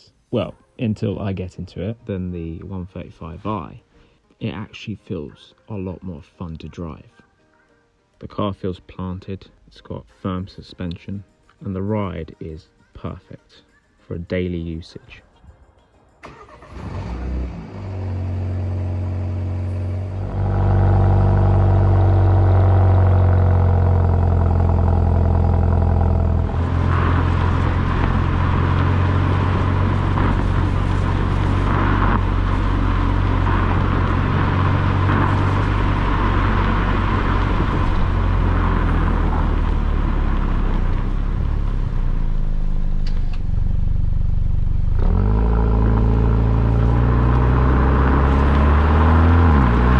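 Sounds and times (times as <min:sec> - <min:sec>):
car engine running: 0:16.6 - 0:49.9.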